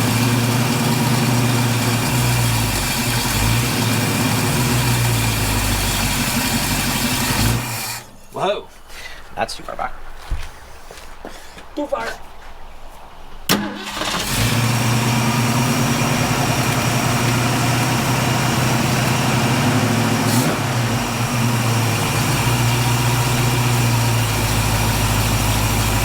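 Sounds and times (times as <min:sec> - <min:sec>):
car engine starting and idling: 0:00.0 - 0:08.2, 0:13.5 - 0:26.0.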